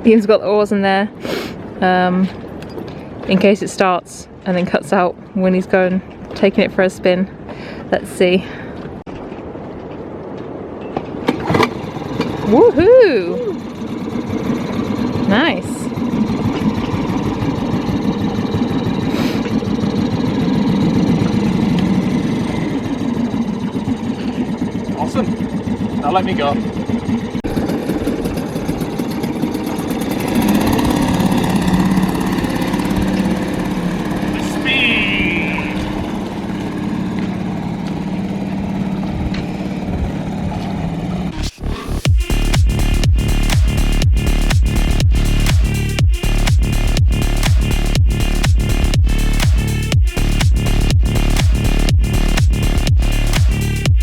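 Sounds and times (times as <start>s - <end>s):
outboard motor running: 11.1s - 54.0s.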